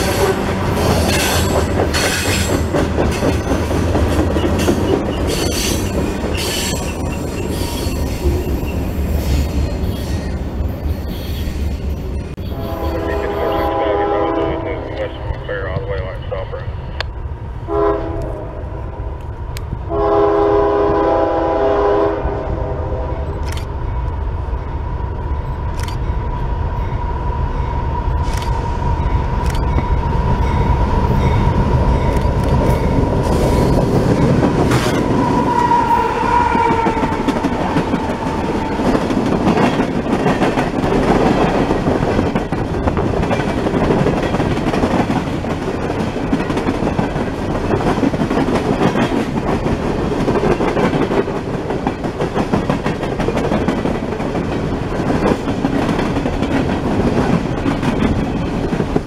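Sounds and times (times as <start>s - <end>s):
freight cars clicking over rail joints: 0.8s - 8.3s
steady high squeal: 5.1s - 13.7s
locomotive horn chord: 12.4s - 15.1s, 17.7s - 18.7s, 19.9s - 23.2s.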